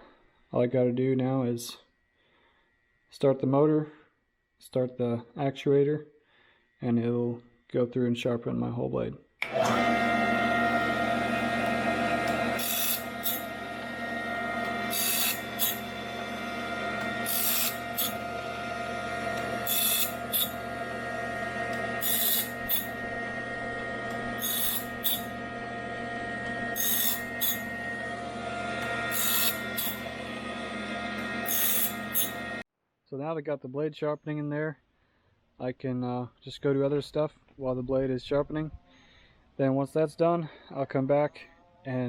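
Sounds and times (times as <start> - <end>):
motor hum: 9.4 - 32.6
short grinding: 9.4 - 32.6.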